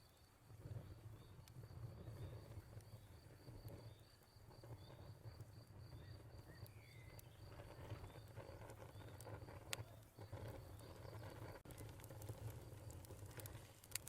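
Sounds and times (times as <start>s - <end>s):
crickets chirping: 0.0s - 13.7s
crackling fire: 0.0s - 14.0s.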